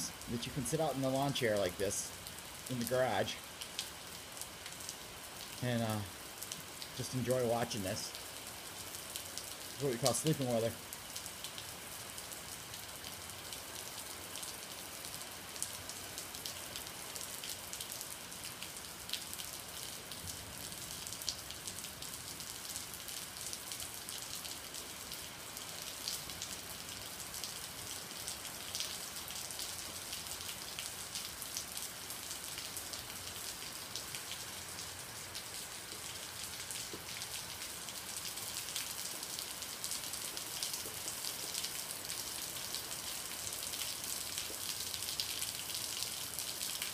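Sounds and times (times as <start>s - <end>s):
steady rain falling: 0.0s - 46.9s
raindrops tapping nearby: 35.4s - 38.0s.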